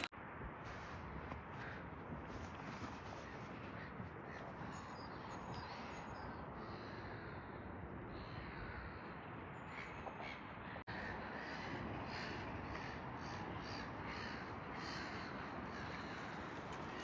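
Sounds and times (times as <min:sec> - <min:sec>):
outdoor background noise: 0:00.0 - 0:17.0
birds calling: 0:02.8 - 0:17.0.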